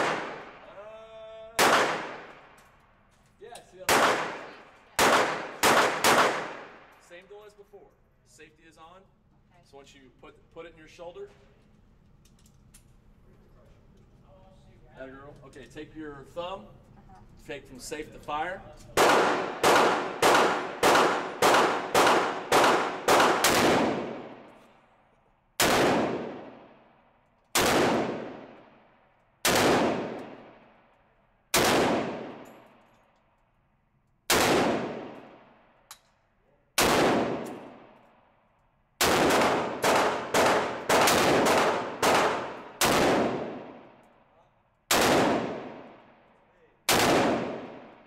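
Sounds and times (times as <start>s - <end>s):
rifle shots echoing: 0.0s - 0.7s, 1.6s - 2.6s, 3.8s - 7.0s, 19.0s - 24.6s, 25.6s - 30.8s, 31.5s - 32.8s, 34.3s - 35.6s, 36.8s - 38.0s, 39.0s - 44.0s, 44.9s - 46.3s, 46.9s - 48.0s.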